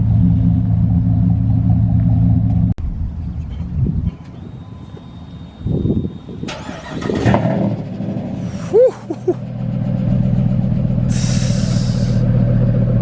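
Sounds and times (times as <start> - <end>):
vehin engine idling: 0.0 - 13.0
engine cranking: 6.4 - 12.3.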